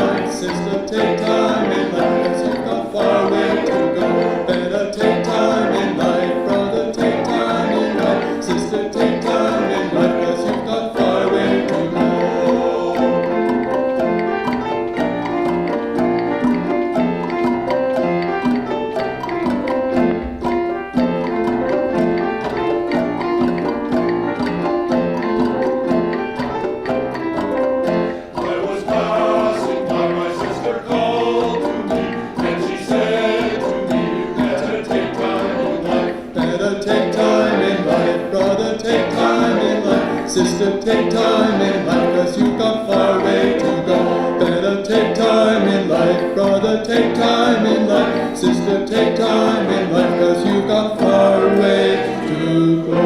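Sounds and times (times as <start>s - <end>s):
choir singing: 0.0s - 15.1s, 28.1s - 53.0s
instrumental accompaniment: 0.0s - 53.0s.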